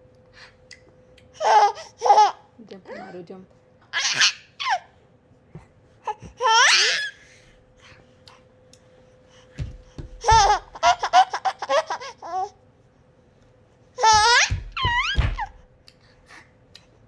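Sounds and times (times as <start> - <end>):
baby squealing: 4.0 - 4.9
low thumps: 9.6 - 10.8, 14.0 - 15.7
baby giggling: 10.2 - 12.5.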